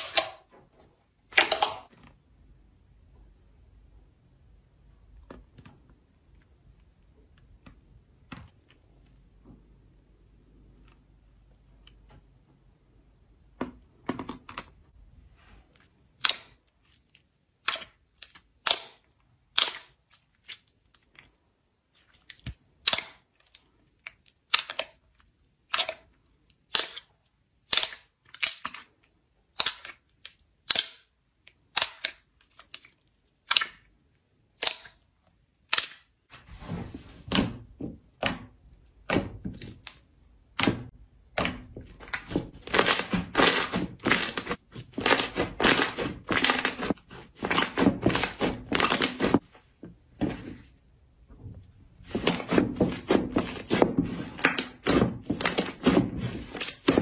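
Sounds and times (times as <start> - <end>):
slime popping: 39.0 - 49.4
slime being squeezed: 41.4 - 49.4.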